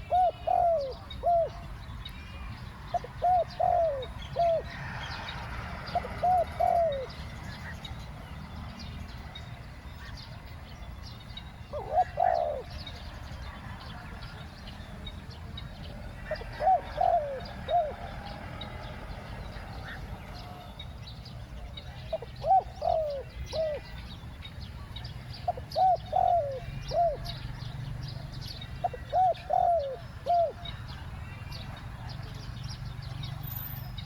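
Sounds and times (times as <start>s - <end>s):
dove cooing: 0.0s - 1.7s, 2.9s - 5.0s, 5.8s - 7.2s, 11.7s - 12.9s, 16.2s - 18.6s, 22.1s - 23.9s, 25.5s - 27.5s, 28.2s - 30.7s.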